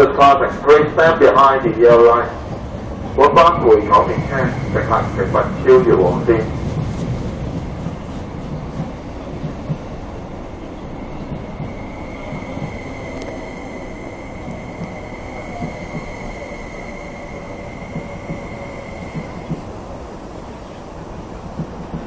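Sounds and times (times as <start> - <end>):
train wheels rumbling on rail: 0.0 - 22.0
steady high whine: 2.2 - 6.8, 10.3 - 20.8.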